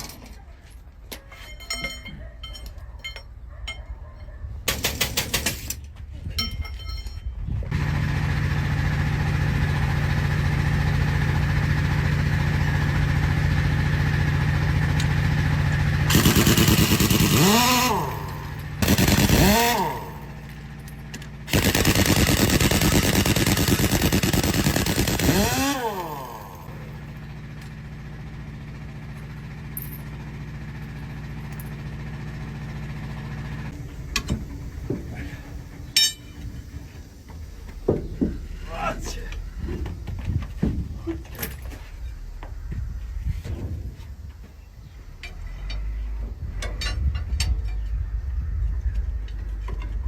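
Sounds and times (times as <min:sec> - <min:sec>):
motor humming: 0:12.5 - 0:20.5, 0:21.5 - 0:27.2
high-speed tool bursts winding down: 0:16.1 - 0:20.4, 0:21.5 - 0:26.9.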